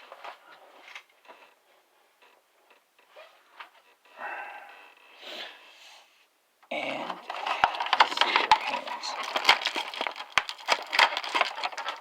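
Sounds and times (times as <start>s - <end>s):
packaging rustle: 7.1s - 12.0s.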